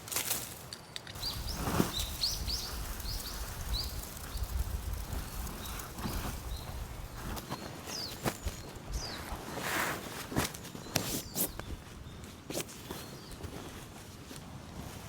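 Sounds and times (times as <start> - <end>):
small bird chirping: 1.2 - 9.4.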